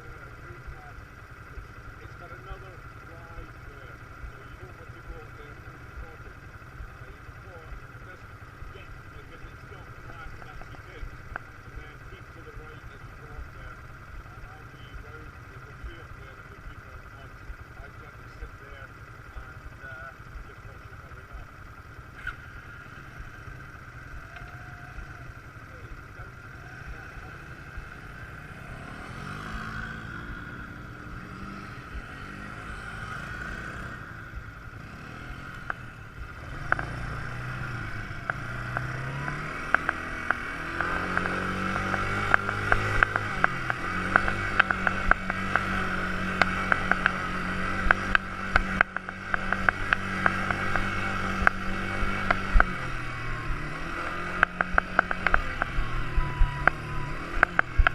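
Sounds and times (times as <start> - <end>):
quad bike engine running: 0.0 - 57.9
sharp clicks and knocks: 36.6 - 37.0, 38.2 - 52.8, 53.9 - 55.8, 56.6 - 57.9.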